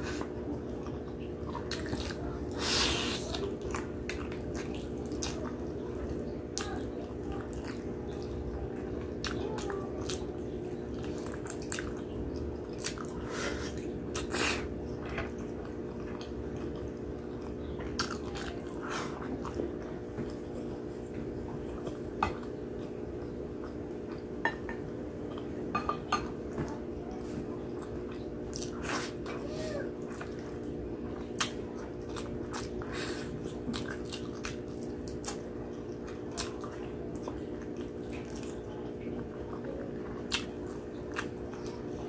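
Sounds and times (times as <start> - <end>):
steady low hum: 0.0 - 42.0
wet chewing and lip smacking: 0.1 - 24.4, 30.0 - 42.0.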